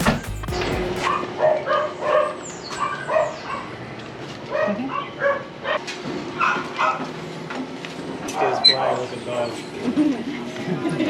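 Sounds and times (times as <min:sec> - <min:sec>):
dogs barking and yipping: 0:01.0 - 0:03.8, 0:04.5 - 0:07.1.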